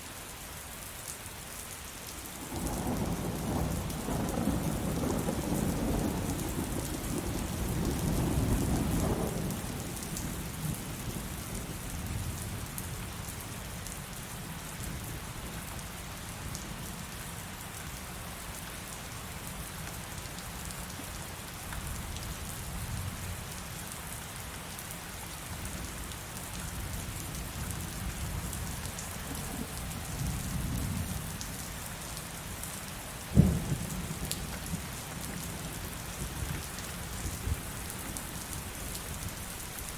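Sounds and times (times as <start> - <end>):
heavy rain falling: 0.1 - 39.9
rolling thunder rumble: 2.5 - 10.8.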